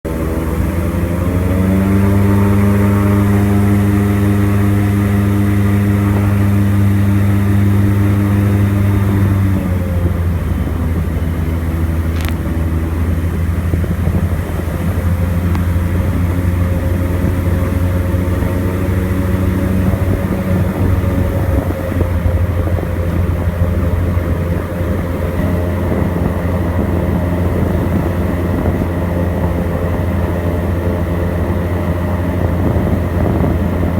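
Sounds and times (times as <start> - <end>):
airboat engine and propeller: 0.0 - 33.9.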